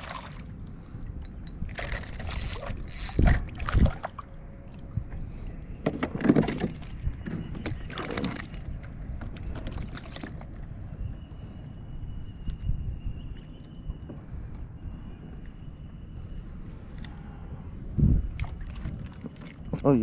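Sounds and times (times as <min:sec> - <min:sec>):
knocks and rustling on kayak: 0:05.8 - 0:10.5.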